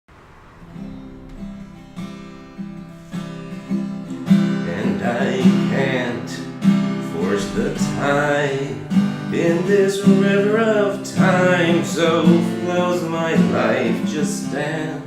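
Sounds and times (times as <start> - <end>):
strummed acoustic guitar: 0.1 - 15.0
wavering melody line: 0.5 - 6.2.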